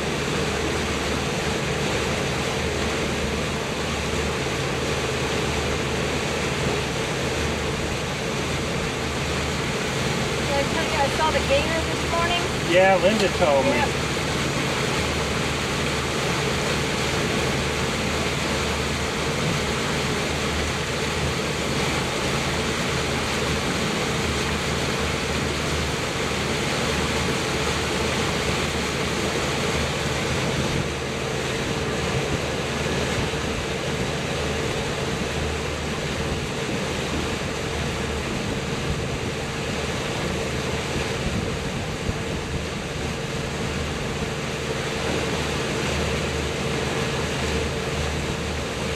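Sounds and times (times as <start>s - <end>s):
motorboat engine humming: 0.0s - 48.9s
water rushing along hull: 0.0s - 48.9s
wind buffeting microphone: 36.2s - 44.6s.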